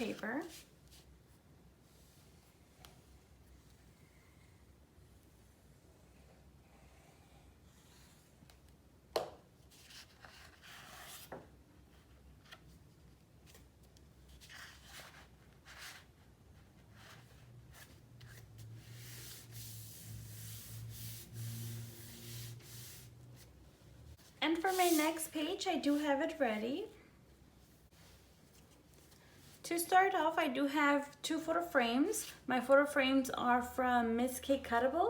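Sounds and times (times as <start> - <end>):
low hum with hiss: 0.0 - 35.0
paper being rubbed by hand: 18.3 - 23.2, 24.5 - 25.2.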